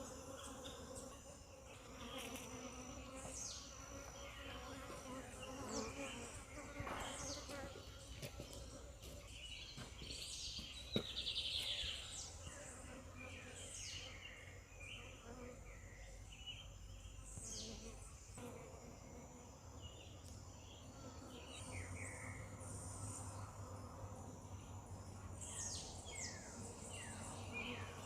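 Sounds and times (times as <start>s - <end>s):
honeybees buzzing: 0.0s - 11.5s.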